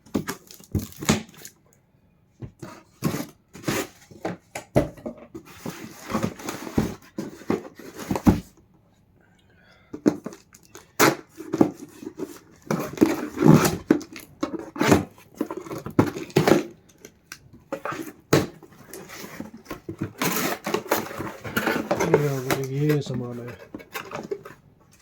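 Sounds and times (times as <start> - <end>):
packaging rustling: 0.1 - 1.5.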